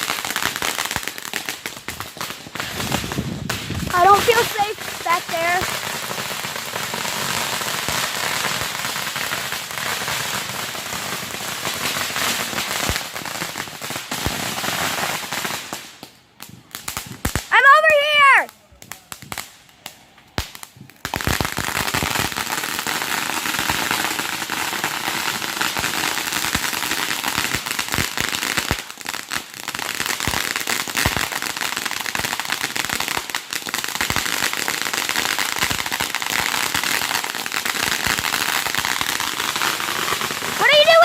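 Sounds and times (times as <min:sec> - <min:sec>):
fireworks crackling: 0:00.0 - 0:41.0
sharp firework pops: 0:15.5 - 0:17.5, 0:18.5 - 0:22.6.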